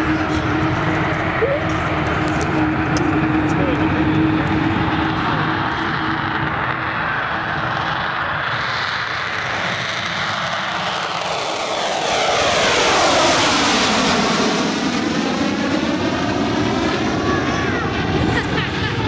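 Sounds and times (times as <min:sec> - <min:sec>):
falling jet whine: 0:00.0 - 0:19.0
jet bomber roaring past: 0:00.0 - 0:19.0.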